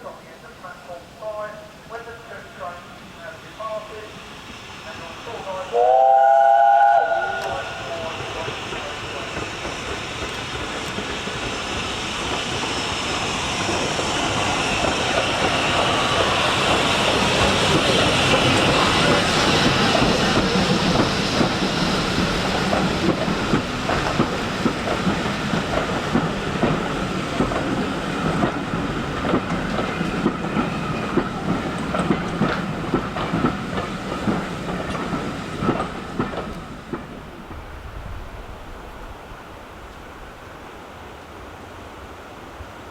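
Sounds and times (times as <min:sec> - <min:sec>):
steam train passing: 0:00.0 - 0:42.9
steam locomotive whistle: 0:05.7 - 0:08.1.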